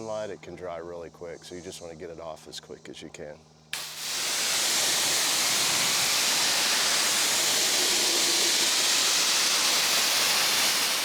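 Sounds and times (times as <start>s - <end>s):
pressure washer spraying water: 3.8s - 11.0s.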